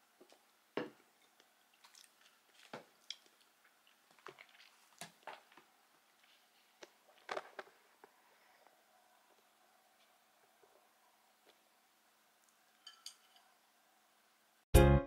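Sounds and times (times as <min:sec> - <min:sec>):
person chewing crunchy food: 0:01.2 - 0:05.7.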